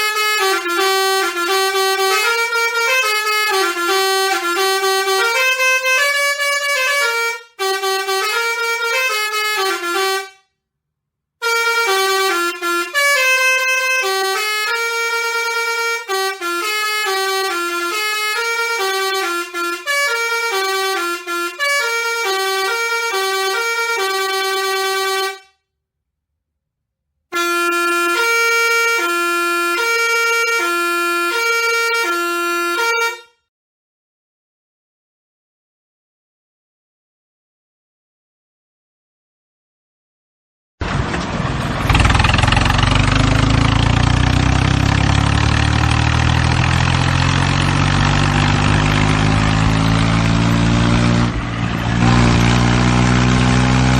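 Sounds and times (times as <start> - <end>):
horn playing a tune: 0.0 - 10.4, 11.4 - 25.5, 27.4 - 33.4, 44.9 - 53.9.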